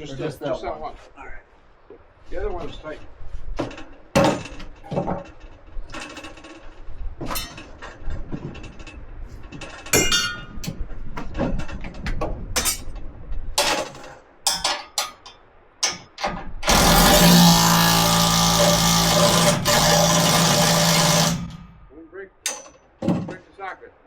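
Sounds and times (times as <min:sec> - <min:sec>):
wrenches clanking on steel: 0:03.8 - 0:10.8, 0:11.5 - 0:13.0, 0:13.6 - 0:23.4.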